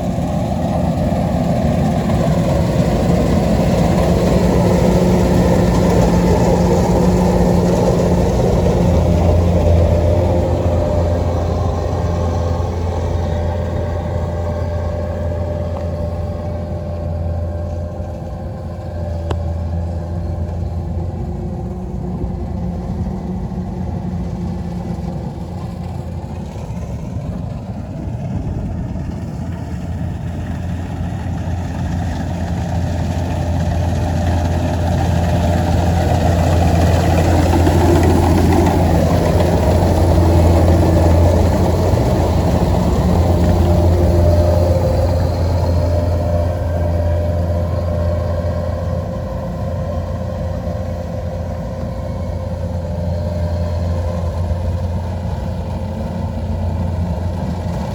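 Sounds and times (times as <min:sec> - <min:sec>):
combine harvester diesel engine: 0:00.0 - 0:57.9.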